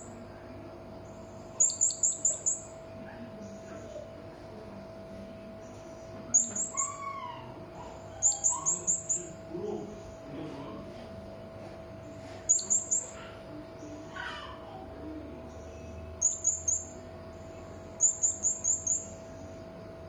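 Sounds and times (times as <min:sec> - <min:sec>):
steady low hum: 0:00.0 - 0:20.0
parrot shrill chirps: 0:06.4 - 0:09.3.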